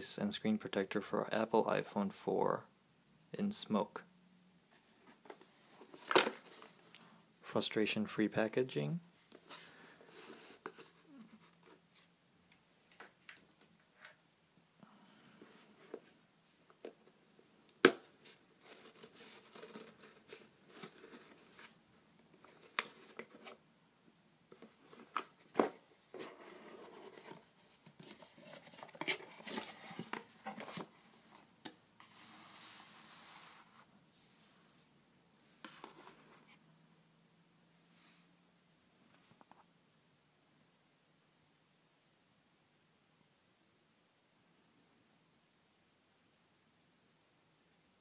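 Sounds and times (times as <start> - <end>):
steady hiss: 32.0 - 35.6.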